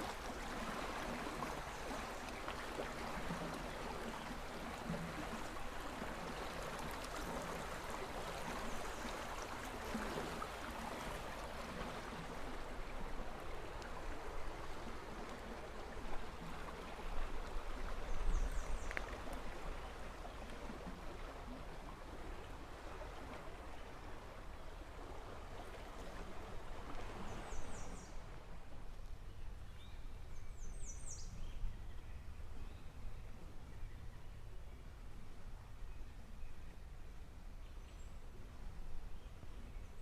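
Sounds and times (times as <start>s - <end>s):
stream water rushing: 0.0s - 28.7s.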